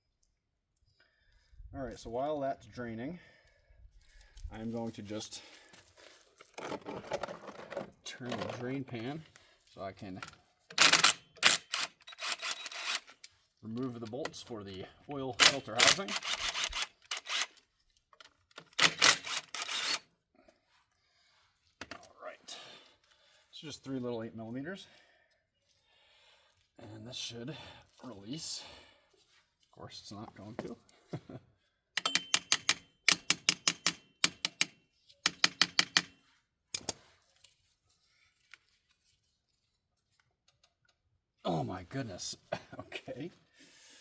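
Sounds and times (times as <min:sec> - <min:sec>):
power tool rasping bursts: 0:10.8 - 0:13.1, 0:15.4 - 0:17.6, 0:18.7 - 0:20.0
cordless driver rapid clacking: 0:18.8 - 0:20.0.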